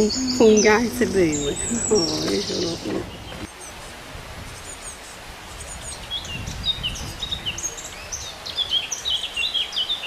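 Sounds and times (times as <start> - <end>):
low background rumble: 0.0 - 3.5
small birds chirping: 0.0 - 10.0.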